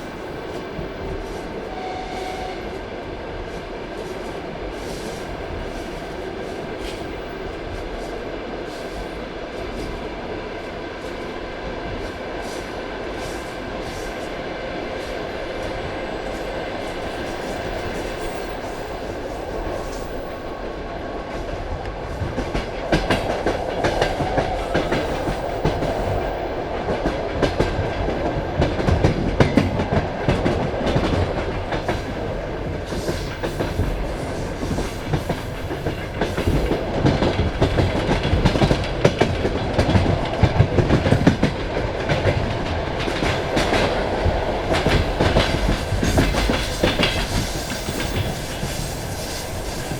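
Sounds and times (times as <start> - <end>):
train wheels rumbling on rails: 0.0 - 49.9
wheels clacking over rail joints: 21.4 - 49.9.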